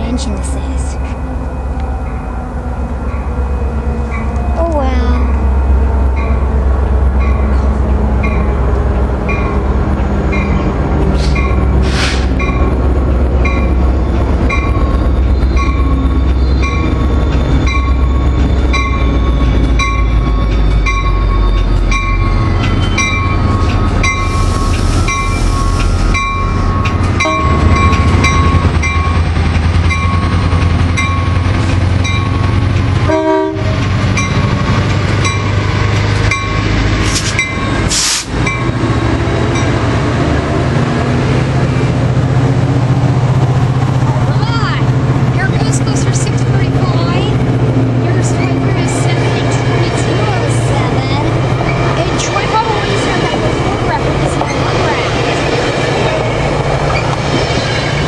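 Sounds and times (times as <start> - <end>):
diesel locomotive rumbling: 0.0 - 58.0
train horn: 27.2 - 27.8, 33.0 - 33.9.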